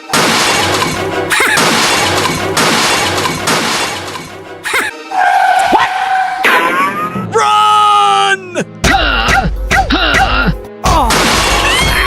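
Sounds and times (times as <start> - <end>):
crashing and shattering effects: 0.0 - 4.3
background music: 0.0 - 12.0.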